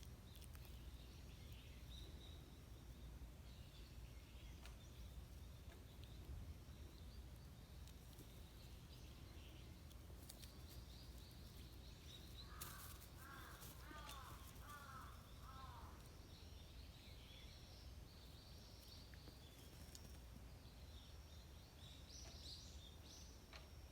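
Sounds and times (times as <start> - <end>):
small birds chirping: 0.0 - 23.9
distant crow cawing: 12.4 - 16.0.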